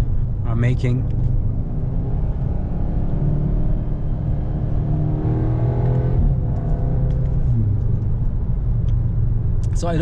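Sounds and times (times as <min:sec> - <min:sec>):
road rumble: 0:00.0 - 0:10.0
car engine accelerating: 0:01.0 - 0:08.8.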